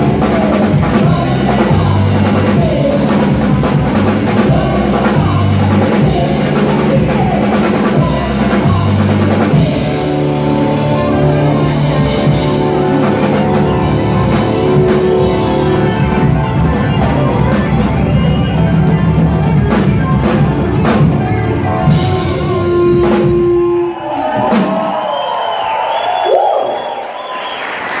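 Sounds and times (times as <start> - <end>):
live rock band playing: 0.0 - 25.0
audience cheering: 22.4 - 28.0.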